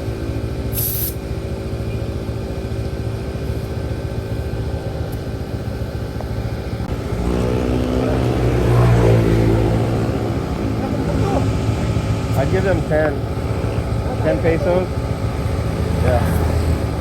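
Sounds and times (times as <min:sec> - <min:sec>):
motorcycle engine running: 0:00.0 - 0:17.0
brief hiss: 0:00.7 - 0:01.2.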